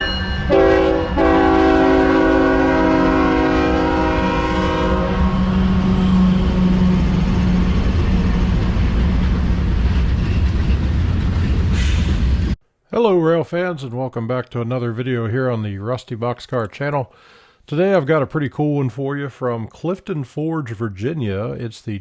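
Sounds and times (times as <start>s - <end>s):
moving train rumble: 0.0s - 12.6s
locomotive air horn: 0.5s - 7.7s.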